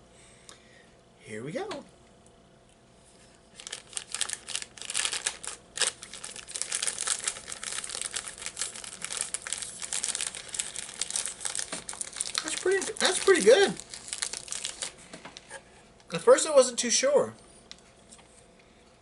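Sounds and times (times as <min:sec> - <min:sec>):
plastic wrapper crinkling: 0:03.5 - 0:15.6.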